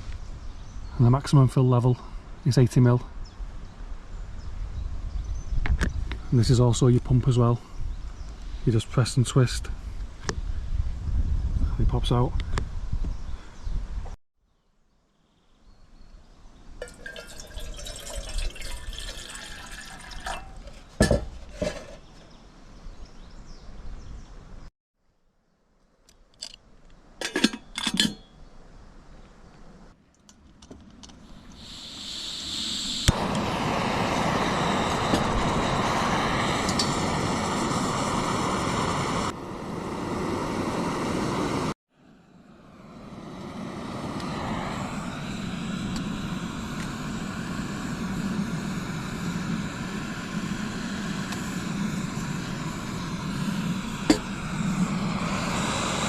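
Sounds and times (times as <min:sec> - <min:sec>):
water pouring into reservoir: 0:16.8 - 0:21.0
loud steady rushing: 0:32.8 - 0:41.8, 0:43.1 - 0:56.0.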